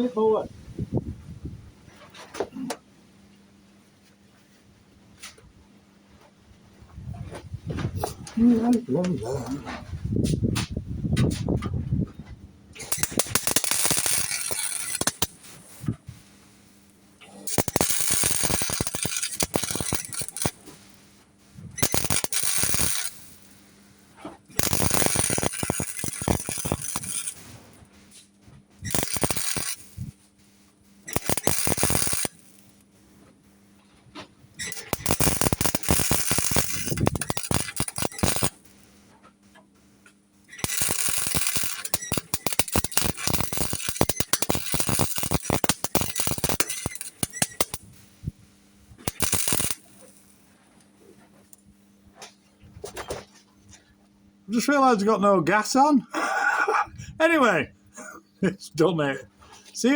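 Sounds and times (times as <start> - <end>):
faint steady hum: 11.7 - 59.9
welder crackling and spitting: 12.8 - 33.1, 34.1 - 39.2, 40.0 - 50.6.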